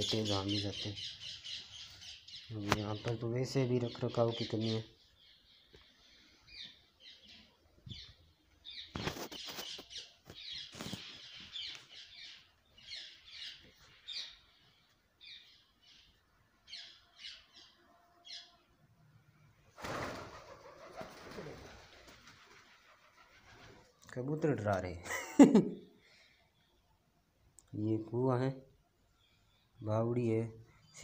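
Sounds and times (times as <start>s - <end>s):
small birds chirping: 0.0s - 18.8s, 25.8s - 31.0s.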